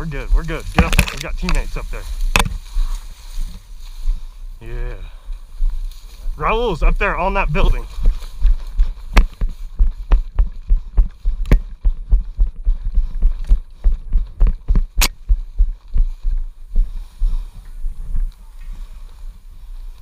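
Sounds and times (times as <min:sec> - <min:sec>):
footsteps: 0:00.0 - 0:20.0
sharp cracks: 0:00.6 - 0:02.6, 0:15.0 - 0:15.2.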